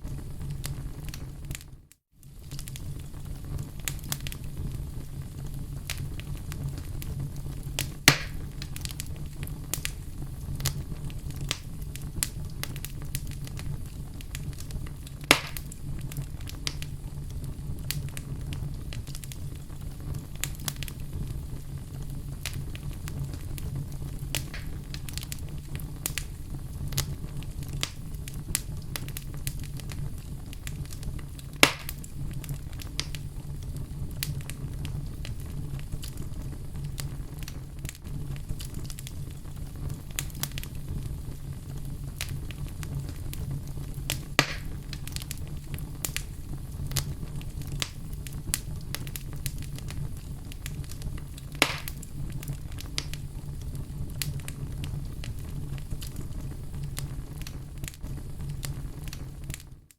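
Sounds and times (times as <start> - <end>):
fire crackling in fireplace: 0.0 - 59.9
loud wood pops: 8.1 - 8.4, 15.3 - 15.6, 24.4 - 24.8, 31.6 - 32.0, 44.4 - 44.8, 51.6 - 52.0.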